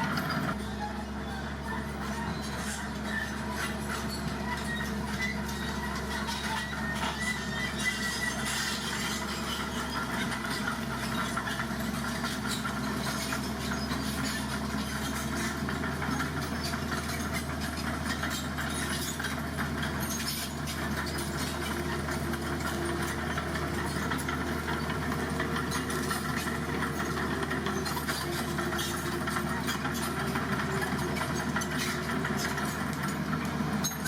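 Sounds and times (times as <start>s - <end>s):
heavy diesel engine idling: 0.0s - 34.0s.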